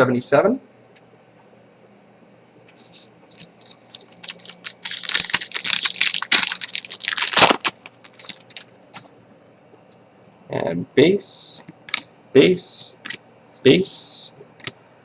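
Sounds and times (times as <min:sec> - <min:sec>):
wrapper tearing and crinkling: 0:02.8 - 0:09.1.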